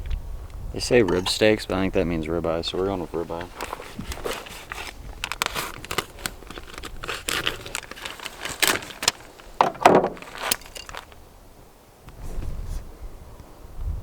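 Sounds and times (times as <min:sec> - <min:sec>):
packaging crinkling and tearing: 0:03.0 - 0:11.2.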